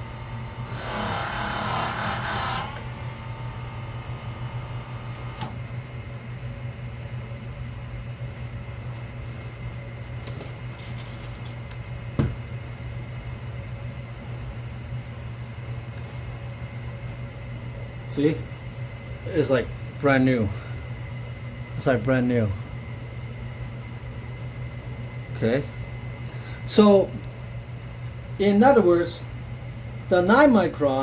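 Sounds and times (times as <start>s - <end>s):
sharpening machine motor humming: 0.0s - 5.6s.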